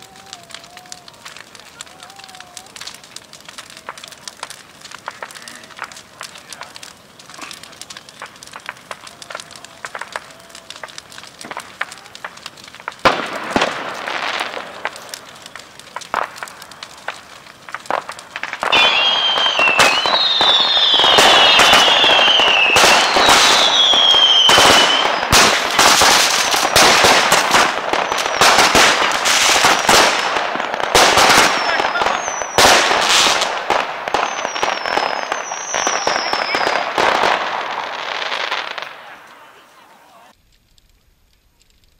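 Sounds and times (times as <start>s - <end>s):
firecrackers popping and crackling: 0.0s - 41.9s
fireworks descending whistles: 0.0s - 41.9s.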